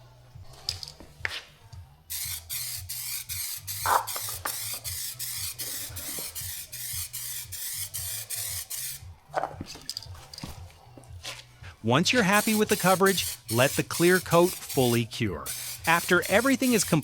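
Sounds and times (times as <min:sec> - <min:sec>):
aerosol can spraying: 0:02.1 - 0:09.0, 0:12.0 - 0:17.0.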